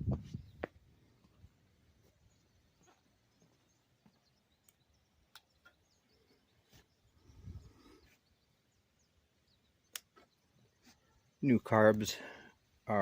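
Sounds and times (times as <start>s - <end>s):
soft clicks: 4.6s - 5.8s.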